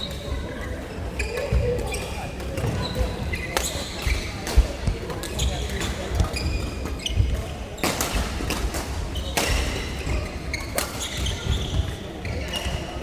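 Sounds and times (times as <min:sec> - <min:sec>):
shoe squeaks: 0:01.2 - 0:04.4, 0:05.3 - 0:07.8, 0:09.2 - 0:13.0.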